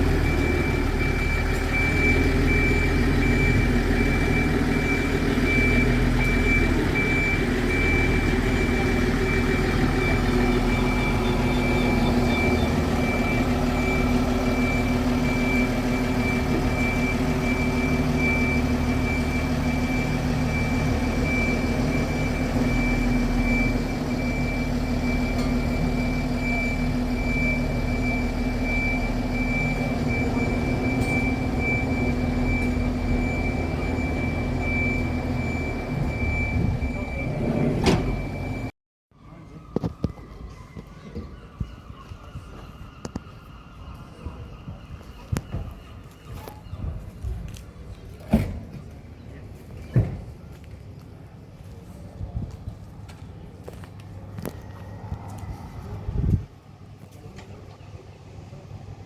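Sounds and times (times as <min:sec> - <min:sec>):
electronic warning beeper: 0:00.0 - 0:38.7.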